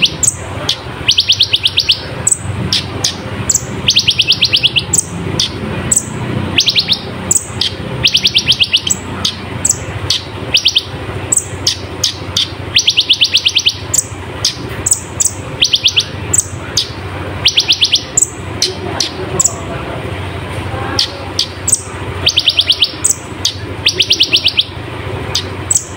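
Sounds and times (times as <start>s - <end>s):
sharp falling chip calls: 0.0s - 19.6s
sunbird trilling song: 0.0s - 19.7s, 21.0s - 25.9s.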